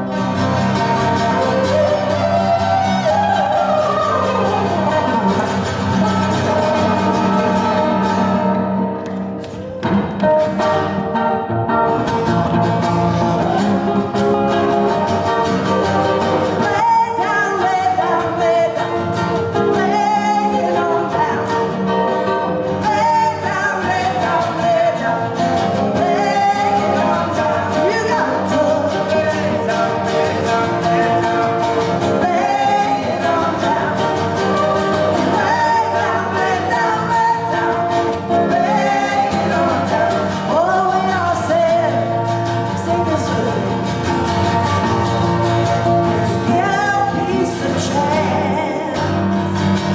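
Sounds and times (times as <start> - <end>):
guitar accompaniment: 0.0 - 49.9
woman singing: 1.3 - 8.4, 16.4 - 44.0, 46.2 - 49.3.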